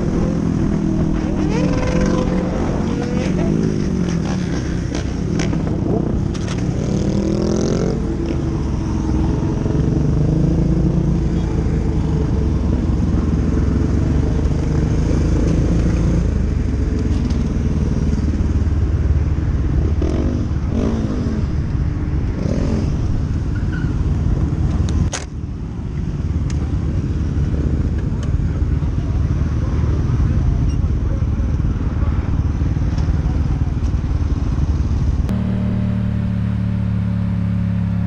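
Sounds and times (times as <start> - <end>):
motorcycle engine running: 25.6 - 38.0.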